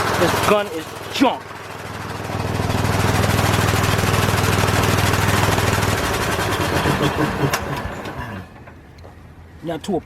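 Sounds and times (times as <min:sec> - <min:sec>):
air impact wrench rattling: 0:00.2 - 0:07.9.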